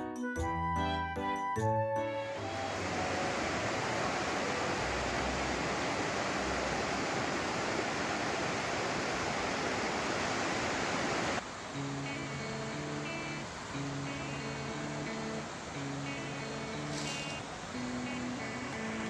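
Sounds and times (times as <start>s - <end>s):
mountain stream rushing: 2.4s - 19.0s
acoustic guitar music: 11.8s - 19.0s.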